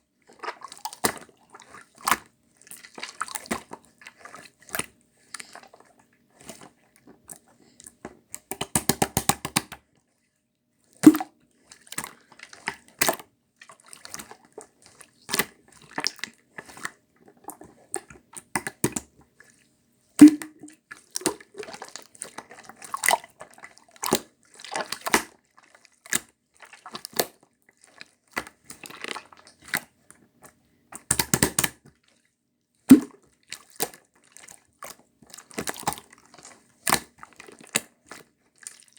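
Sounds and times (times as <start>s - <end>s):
slime squished by hand: 20.2s - 20.8s, 32.9s - 33.2s.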